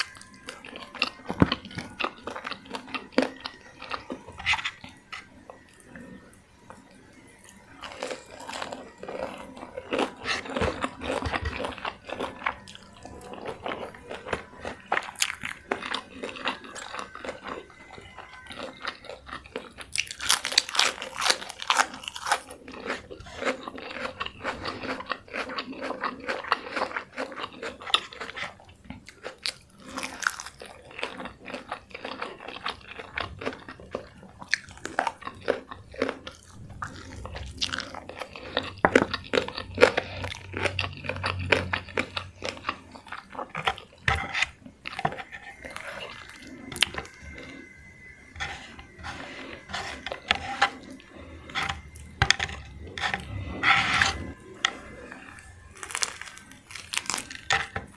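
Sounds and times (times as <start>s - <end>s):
crunching and chewing fried chicken: 0.0s - 57.9s.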